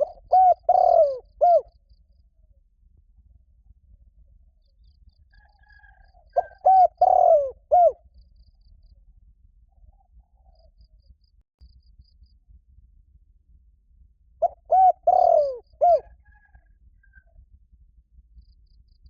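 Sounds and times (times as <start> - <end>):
dove cooing: 0.0 - 1.7, 5.7 - 8.0, 14.4 - 16.5.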